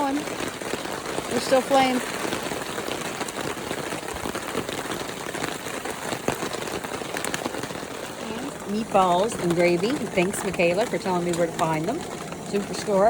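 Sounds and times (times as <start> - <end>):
drops ticking on surfaces: 0.0 - 13.0
heavy rain: 0.0 - 13.0.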